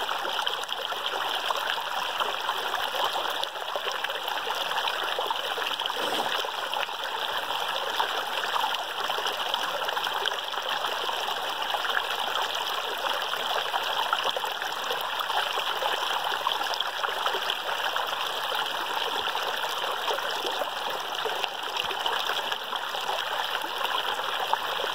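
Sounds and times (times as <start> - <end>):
water rushing: 5.5 - 6.9.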